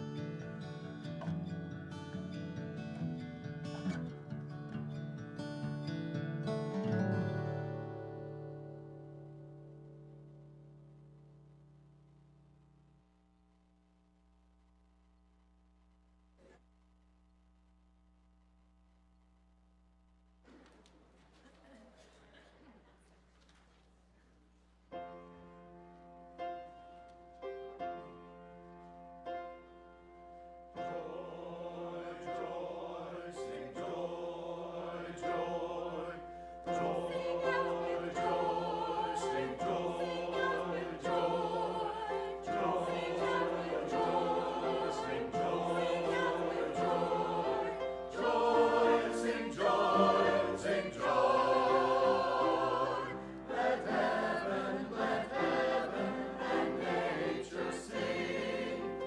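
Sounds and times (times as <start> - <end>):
choir singing: 30.7 - 59.0.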